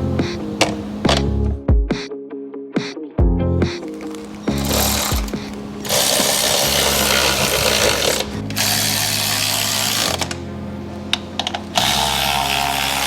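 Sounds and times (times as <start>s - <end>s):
background music with bass: 0.0s - 13.0s
handheld power tool running: 4.5s - 10.4s, 11.1s - 13.0s.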